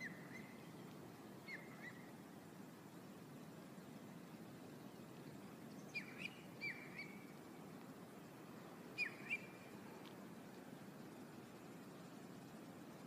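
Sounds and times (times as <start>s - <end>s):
bird chirps: 0.0s - 2.1s, 5.7s - 7.3s, 9.0s - 9.6s
faint background noise: 0.0s - 13.0s.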